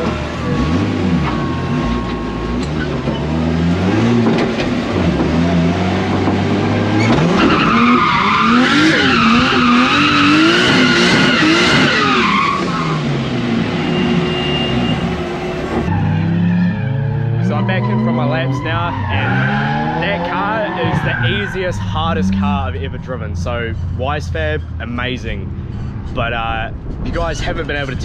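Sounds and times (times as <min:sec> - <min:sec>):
car engine revving: 0:00.0 - 0:28.0
tyres squealing: 0:07.0 - 0:25.1.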